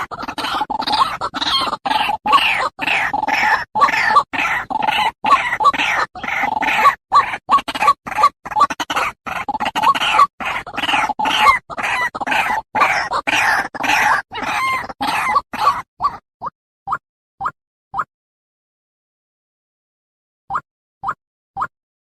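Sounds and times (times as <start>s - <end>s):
bird croaking and clucking: 0.0s - 16.2s.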